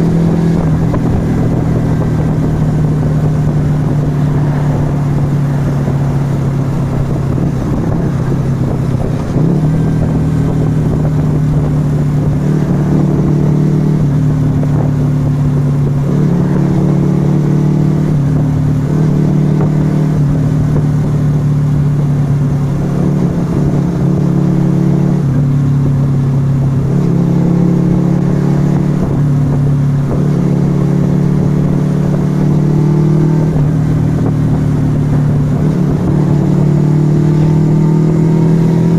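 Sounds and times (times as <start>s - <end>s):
motorcycle v-twin engine running: 0.0s - 38.9s.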